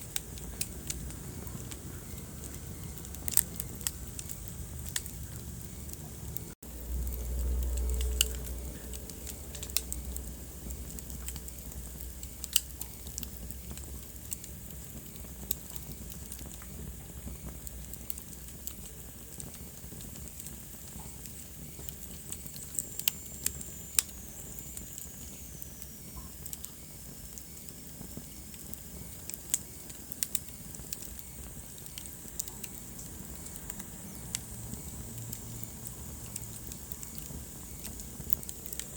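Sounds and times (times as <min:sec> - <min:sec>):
wood fire crackling: 0:00.0 - 0:38.9
low rumble: 0:00.4 - 0:12.5.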